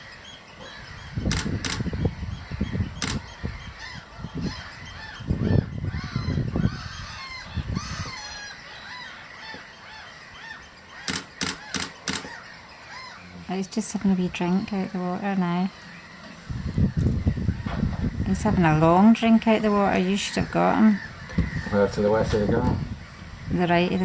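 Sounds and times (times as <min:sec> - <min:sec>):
wild birds calling: 0:00.0 - 0:24.0
wind buffeting microphone: 0:00.7 - 0:08.5, 0:16.2 - 0:24.0
sharp clicks: 0:01.3 - 0:01.9, 0:03.0 - 0:03.2, 0:11.1 - 0:12.4.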